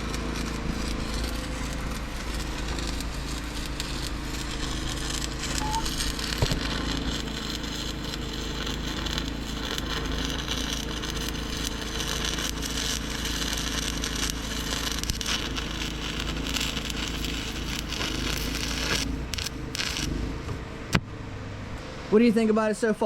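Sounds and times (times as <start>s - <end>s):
low hum: 0.0s - 11.6s
welding arc crackling: 0.0s - 20.6s.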